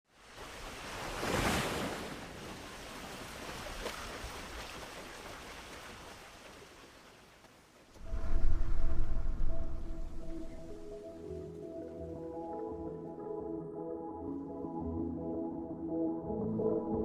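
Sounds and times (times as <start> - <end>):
ocean wave breaking: 0.2 - 7.1, 8.0 - 11.0
music: 8.1 - 17.0.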